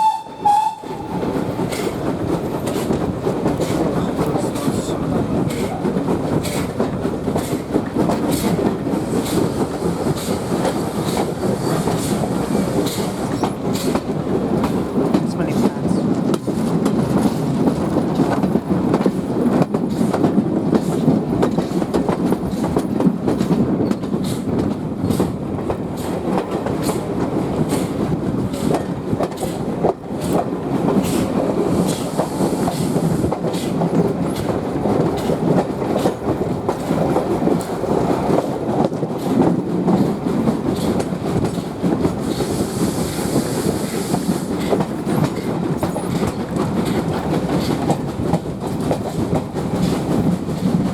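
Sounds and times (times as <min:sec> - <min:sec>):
train rumbling: 0:00.0 - 0:50.9
wheels clacking over rail joints: 0:00.8 - 0:50.9
steam hiss: 0:31.0 - 0:33.8, 0:42.2 - 0:44.7.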